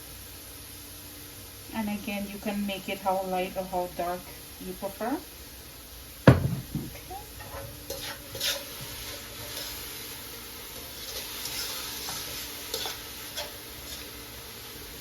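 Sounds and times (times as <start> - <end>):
vegetables sizzling in frying pan: 0.0 - 15.0
spoon scraping pan: 7.4 - 10.1, 10.7 - 14.2.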